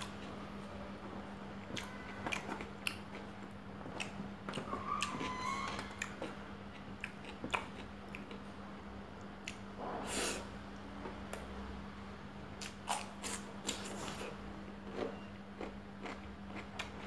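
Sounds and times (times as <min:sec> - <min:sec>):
steady low hum: 0:00.0 - 0:17.0
person chewing and lip smacking: 0:01.6 - 0:05.3, 0:06.0 - 0:08.5, 0:09.2 - 0:09.7, 0:12.6 - 0:17.0.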